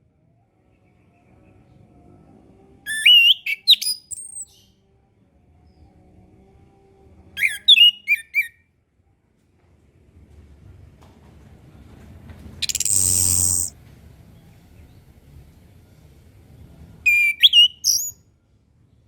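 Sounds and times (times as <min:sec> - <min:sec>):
thrush singing whistled phrases: 0:02.9 - 0:04.5, 0:07.4 - 0:08.5, 0:12.6 - 0:13.7, 0:17.1 - 0:18.2.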